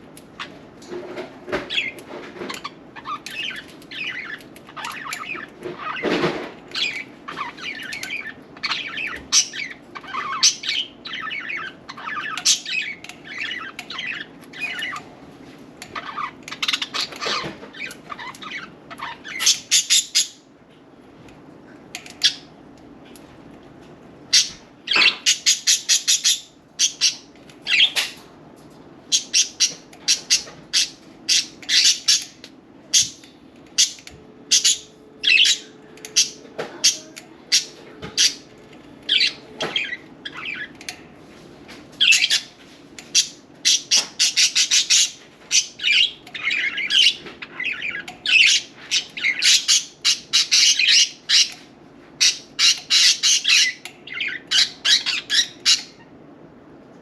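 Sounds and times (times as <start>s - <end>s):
budgerigars chattering: 43.1s - 51.6s, 52.2s - 56.0s.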